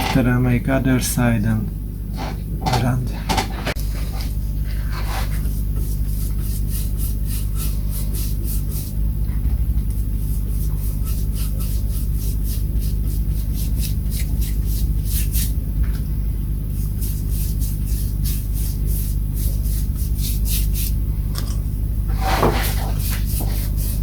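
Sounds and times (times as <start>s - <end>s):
low machine hum: 0.0s - 24.0s
quick scraping strokes: 22.1s - 24.0s.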